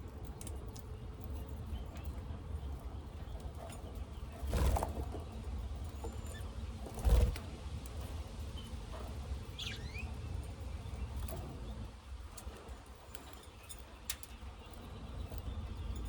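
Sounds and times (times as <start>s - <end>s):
birds chirping: 8.5s - 16.0s.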